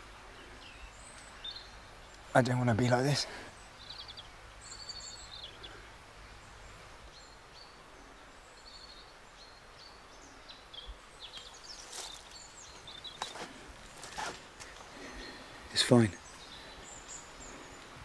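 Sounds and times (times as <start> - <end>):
steady hiss: 0.0 - 18.0
bird chirps: 3.5 - 5.8.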